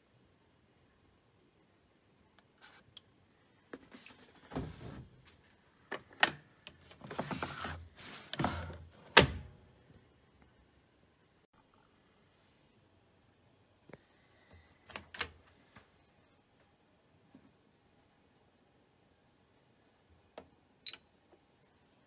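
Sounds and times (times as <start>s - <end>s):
scraping or rustling: 7.0s - 8.8s.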